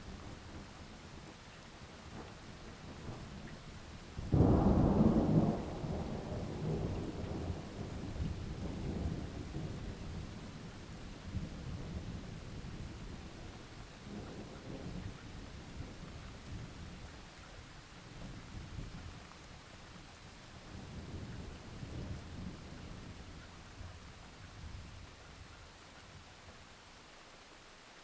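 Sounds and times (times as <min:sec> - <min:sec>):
steady rain: 0:00.0 - 0:28.0
low rolling thunder: 0:04.2 - 0:17.1, 0:20.7 - 0:23.2.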